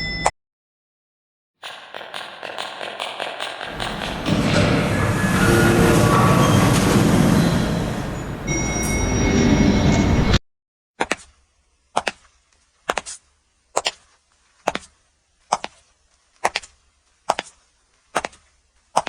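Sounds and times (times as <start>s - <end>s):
loud rushing noise: 3.6s - 8.6s.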